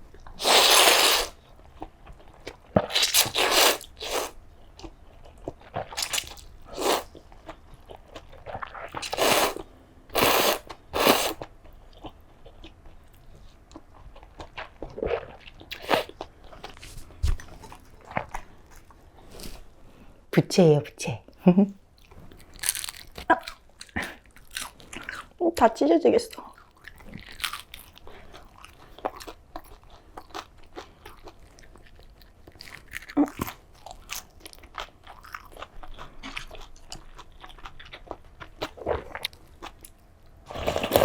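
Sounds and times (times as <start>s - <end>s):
loud bites and mouth noises: 2.8s - 4.4s
crunchy chewing: 22.0s - 25.3s, 26.4s - 41.0s.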